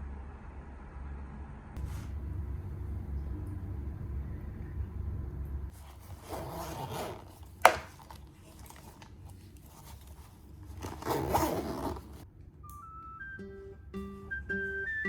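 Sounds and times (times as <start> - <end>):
rustling scrapes on desk: 5.7 - 12.2.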